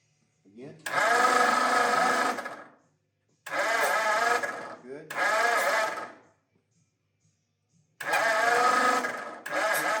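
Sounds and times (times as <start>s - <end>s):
starter motor cranking engine: 0.8s - 2.7s, 3.4s - 6.2s, 8.0s - 10.0s.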